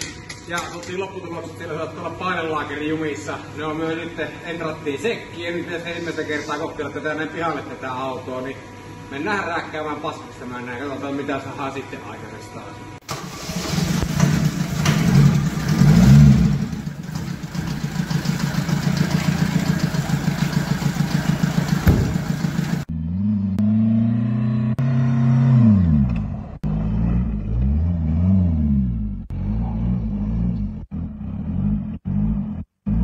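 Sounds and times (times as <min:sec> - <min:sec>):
car engine revving: 0:13.1 - 0:33.0.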